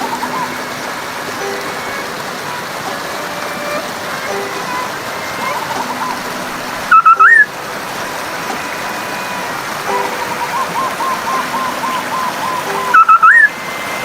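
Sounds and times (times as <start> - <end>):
birds calling: 0.0 - 14.0
stream running: 0.0 - 14.0
loud rising bird warble: 5.4 - 7.5, 9.3 - 14.0.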